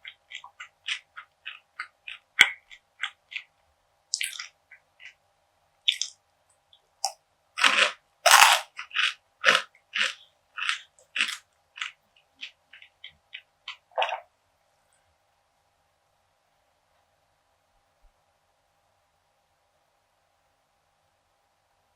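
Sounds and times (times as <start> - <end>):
crunchy chewing: 0.0 - 3.5, 4.1 - 5.2, 5.9 - 6.2, 7.0 - 14.3.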